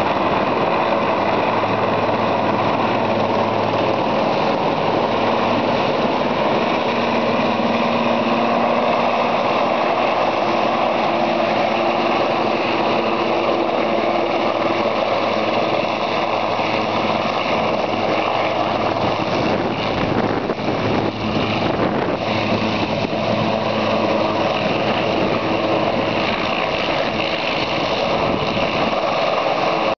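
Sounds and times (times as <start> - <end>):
helicopter engine and rotor: 0.0 - 30.0.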